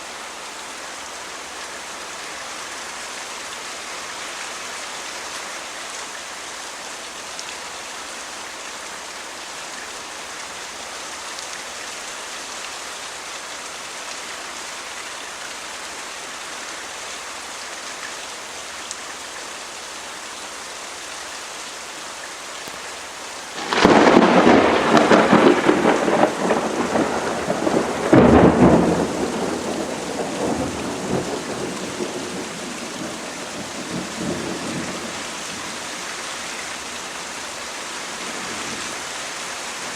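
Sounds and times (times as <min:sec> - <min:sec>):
steady rain falling: 0:00.0 - 0:39.9
thunderclap rumbling: 0:23.6 - 0:35.6.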